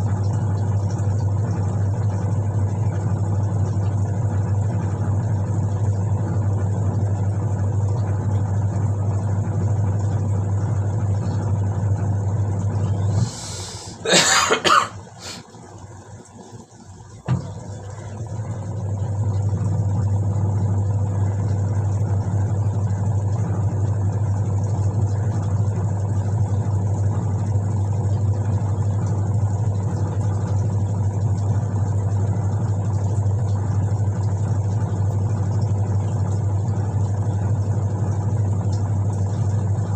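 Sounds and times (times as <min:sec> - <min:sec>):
washing machine motor humming: 0:00.0 - 0:39.9
person coughing: 0:13.9 - 0:15.4.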